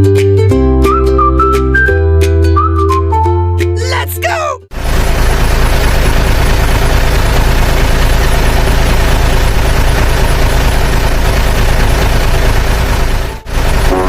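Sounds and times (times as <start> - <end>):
heavy vehicle engine rumbling: 3.9 - 14.0.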